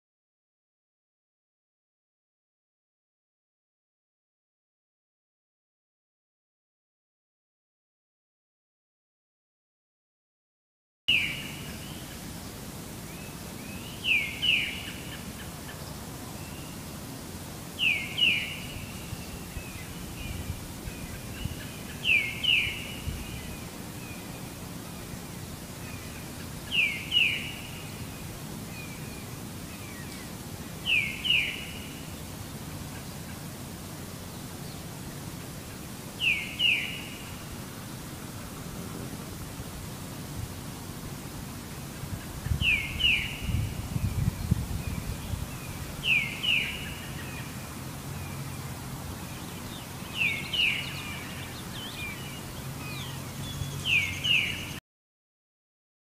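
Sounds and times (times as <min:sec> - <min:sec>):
low background rush: 0:11.2 - 0:54.8.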